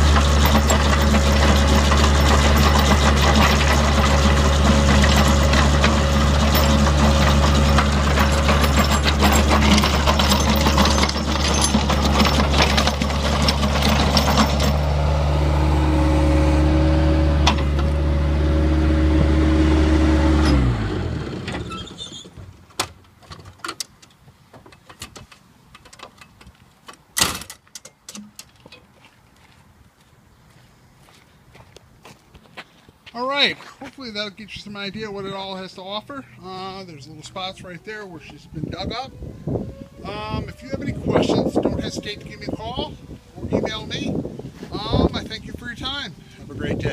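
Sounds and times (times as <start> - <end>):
engine winding down: 0.0 - 22.3, 39.8 - 43.0
harsh rough grinding noise: 0.0 - 22.4
skid steer engine running hard: 0.0 - 22.4.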